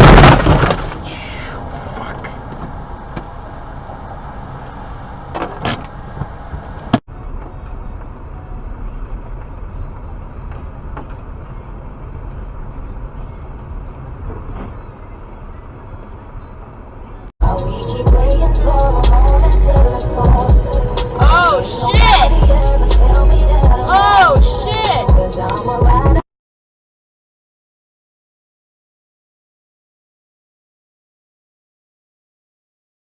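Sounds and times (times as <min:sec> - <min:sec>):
vehicle road and engine noise: 0:00.0 - 0:26.2.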